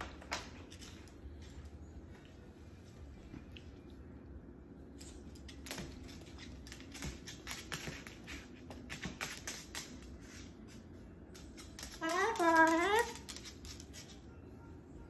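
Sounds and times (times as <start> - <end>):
cockatoo beak clicks and taps: 11.3 - 14.2.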